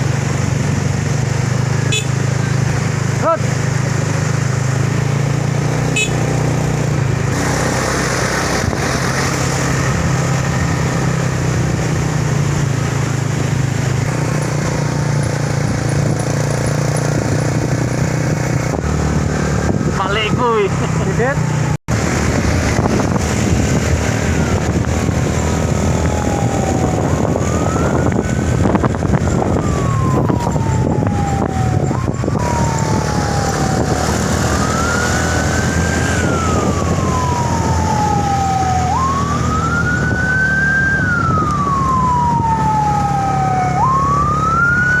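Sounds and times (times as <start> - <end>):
vehicle engine hum: 0.0 - 45.0
siren wailing: 23.6 - 45.0.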